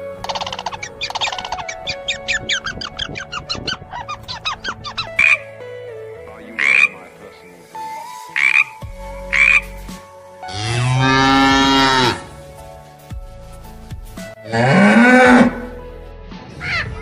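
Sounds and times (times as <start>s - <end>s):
gull calls: 0.2s - 5.4s
cow mooing: 10.5s - 12.3s, 14.5s - 15.7s.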